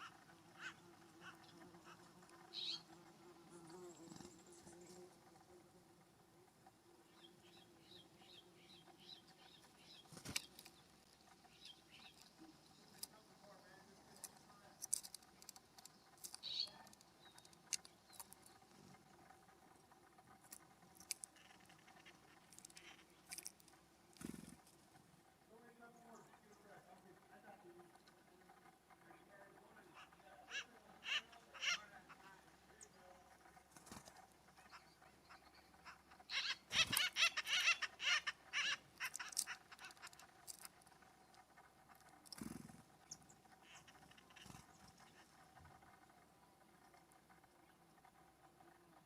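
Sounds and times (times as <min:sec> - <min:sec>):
bird giving harsh raspy calls: 0:00.0 - 0:02.9, 0:21.1 - 0:23.5, 0:29.9 - 0:32.9, 0:34.5 - 0:40.7, 0:43.1 - 0:45.4.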